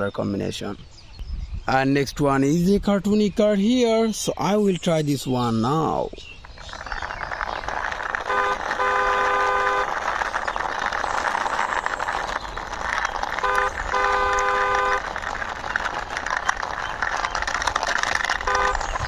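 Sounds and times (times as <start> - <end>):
toy car rolling: 5.4 - 19.0
toy horn beeping: 8.2 - 9.9, 13.4 - 15.0, 18.4 - 19.0.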